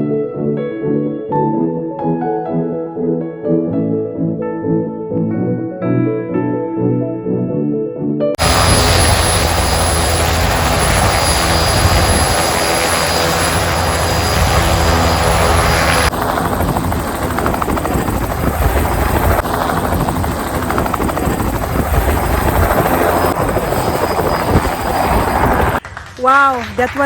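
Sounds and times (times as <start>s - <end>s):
helicopter rotor and turbine: 8.4s - 25.8s.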